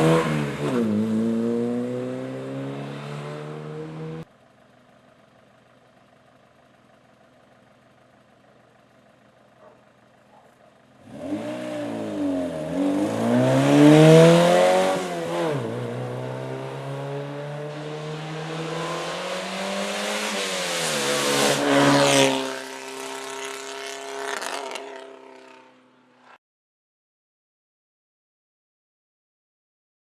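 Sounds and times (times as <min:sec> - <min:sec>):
race car engine at full throttle: 0:00.0 - 0:04.4, 0:08.1 - 0:26.4.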